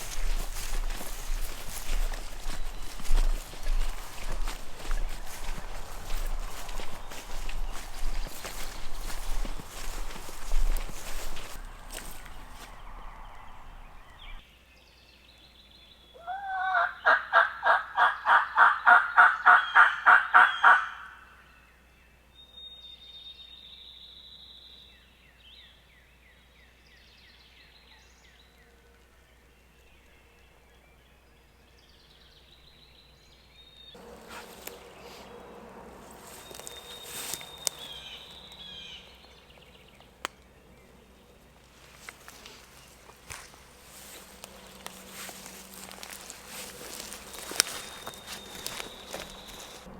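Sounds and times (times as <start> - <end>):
rustling: 0.0 - 14.4, 34.0 - 38.9, 41.4 - 49.9
faint songbird chirps: 0.0 - 17.2, 19.1 - 49.9
turkey call yelps: 16.2 - 21.3.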